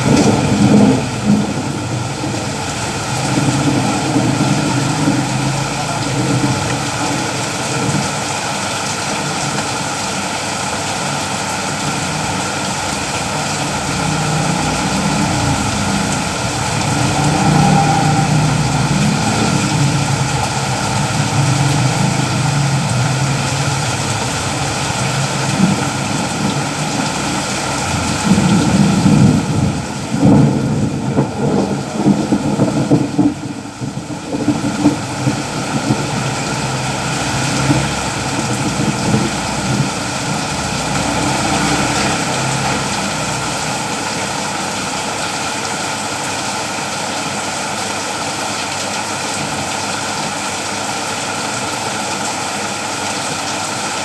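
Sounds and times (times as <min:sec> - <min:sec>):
rain falling: 0:00.0 - 0:54.0
low rumble: 0:11.8 - 0:42.3.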